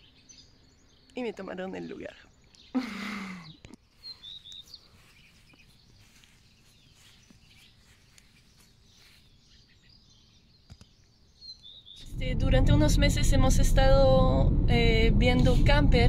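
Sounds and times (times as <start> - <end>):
birds chirping faintly: 0.0 - 12.3.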